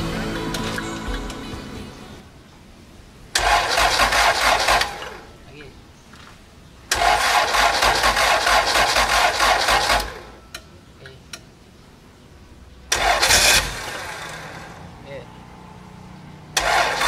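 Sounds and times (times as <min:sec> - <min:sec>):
engine cranking on starter motor: 0:03.3 - 0:05.3, 0:06.9 - 0:10.4, 0:12.9 - 0:14.8, 0:16.5 - 0:17.0.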